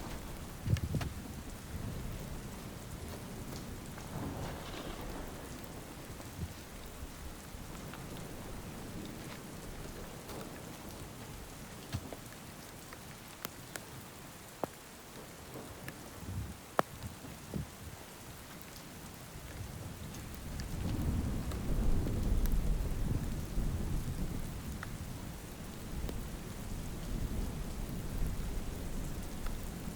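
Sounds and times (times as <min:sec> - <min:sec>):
thunder rumble: 0:00.0 - 0:12.2, 0:19.6 - 0:29.9
raindrops striking close by: 0:00.0 - 0:29.9
steady rain falling: 0:00.0 - 0:29.9.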